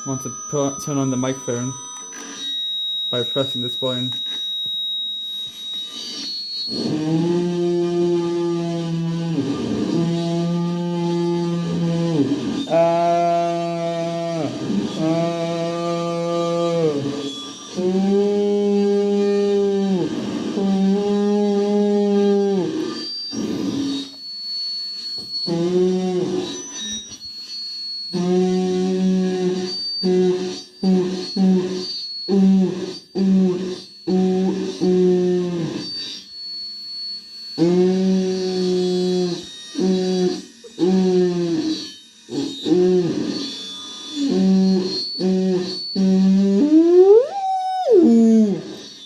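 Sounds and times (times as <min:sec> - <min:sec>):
high whine: 0:00.0 - 0:49.0
distorted vocal drone: 0:03.1 - 0:04.4, 0:06.7 - 0:24.2, 0:25.4 - 0:26.6, 0:28.2 - 0:36.2, 0:37.6 - 0:48.9.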